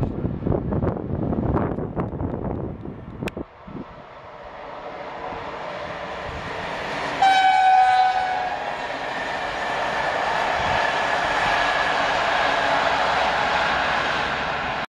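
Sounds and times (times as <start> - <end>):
train wheels on rails: 0.0 - 14.9
locomotive horn blast: 7.2 - 8.6.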